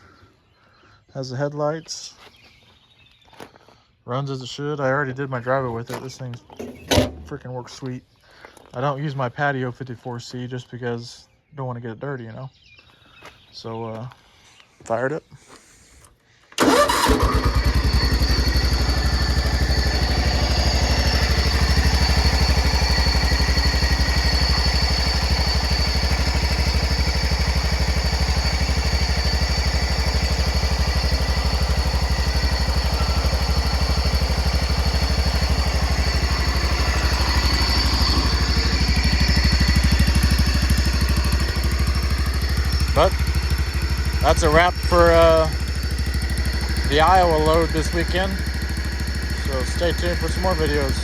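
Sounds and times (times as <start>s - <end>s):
garden tractor engine putter: 5.9s - 7.4s, 16.6s - 51.0s.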